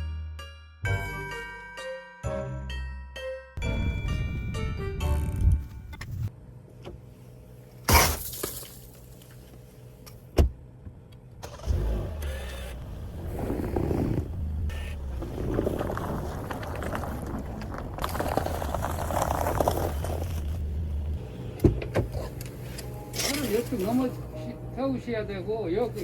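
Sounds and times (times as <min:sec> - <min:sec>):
road noise: 0:03.6 - 0:26.0
car engine running: 0:10.6 - 0:24.7.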